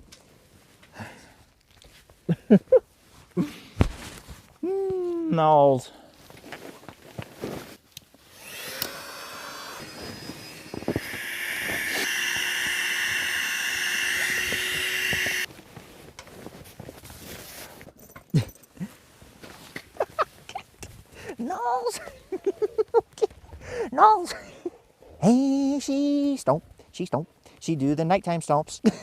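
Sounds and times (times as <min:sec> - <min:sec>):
small motor whirring: 0:08.3 - 0:15.5.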